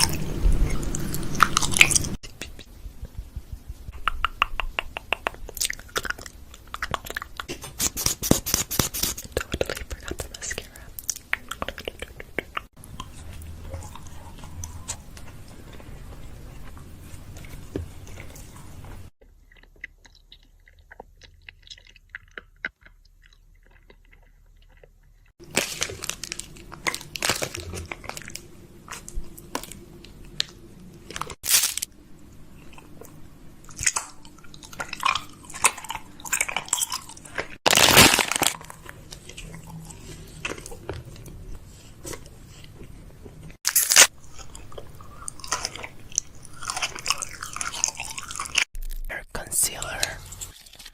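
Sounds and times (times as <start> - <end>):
wet mouth clicks and smacks: 3.9 - 7.4.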